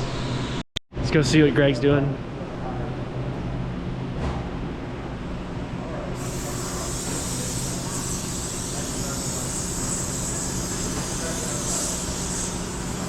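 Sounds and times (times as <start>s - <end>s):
shop machinery hum: 0.0s - 13.0s
gas torch hissing: 6.2s - 13.0s.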